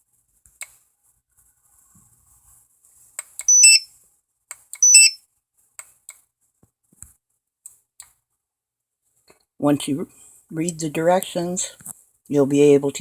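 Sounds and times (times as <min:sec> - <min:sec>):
barcode scanner two-note beep: 0:03.4 - 0:03.8, 0:04.8 - 0:05.2.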